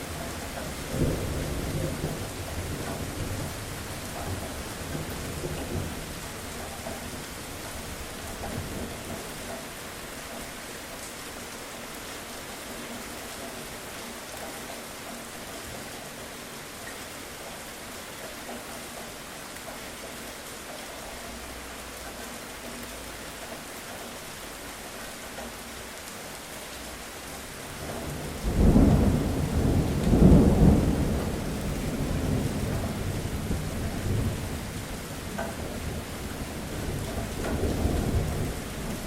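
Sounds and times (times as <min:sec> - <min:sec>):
steady rain falling: 0:00.0 - 0:39.0
thunder crack and rumble: 0:00.2 - 0:09.4, 0:27.7 - 0:39.0.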